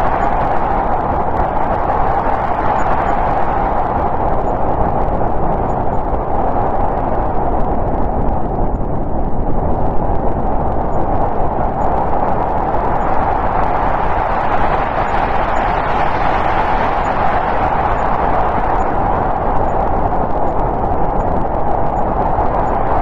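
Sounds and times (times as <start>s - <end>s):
howling snowstorm wind: 0.0s - 23.0s.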